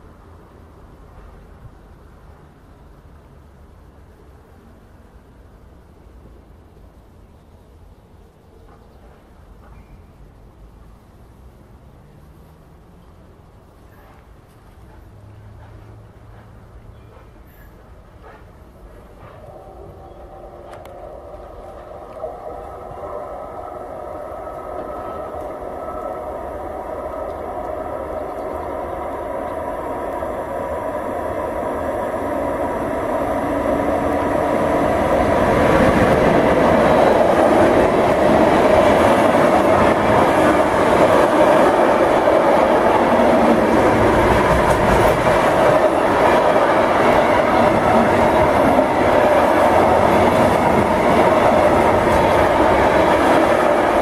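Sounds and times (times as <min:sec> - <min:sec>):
electric locomotive passing: 0:00.0 - 0:54.0
freight wagons rolling past: 0:13.7 - 0:54.0.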